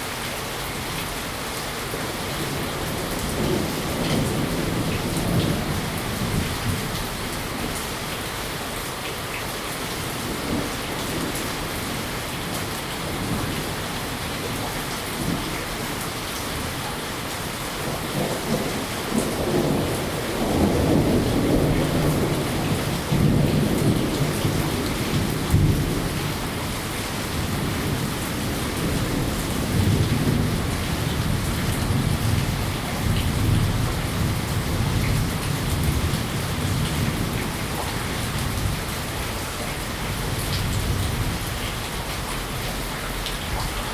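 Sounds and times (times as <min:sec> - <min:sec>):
steady rain: 0:00.0 - 0:43.9
rolling thunder: 0:02.4 - 0:07.2, 0:17.8 - 0:39.0.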